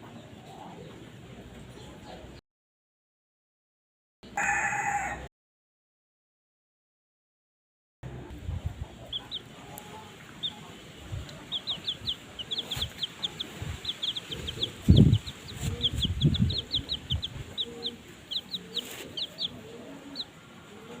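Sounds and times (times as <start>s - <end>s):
chicks peeping: 0.0s - 2.4s, 8.4s - 21.0s.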